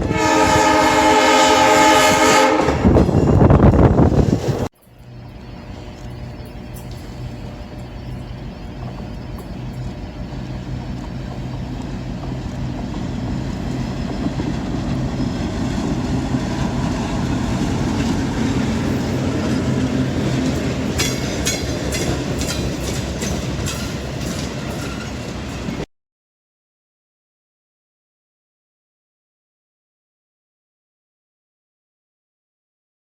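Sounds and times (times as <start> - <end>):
diesel locomotive engine: 0.0 - 25.9
wheel clicks over rail joints: 17.2 - 25.8.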